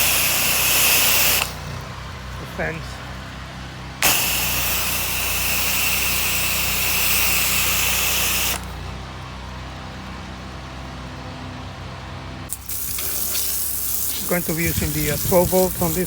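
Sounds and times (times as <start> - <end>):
pressure washer spraying water: 0.0 - 1.8, 4.0 - 8.8, 12.5 - 16.0
pressure washer motor hum: 0.0 - 16.0.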